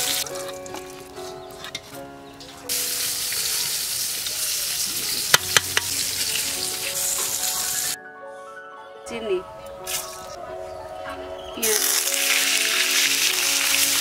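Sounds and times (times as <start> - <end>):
food sizzling in hot oil: 0.0 - 1.0, 2.4 - 8.0, 11.6 - 14.0
utensil clacking against pan: 5.3 - 6.1.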